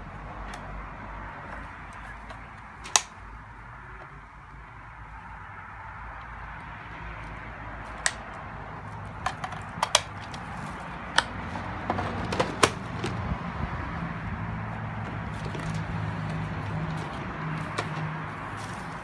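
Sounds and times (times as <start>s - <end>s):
sharp clicks and knocks: 9.0s - 10.5s.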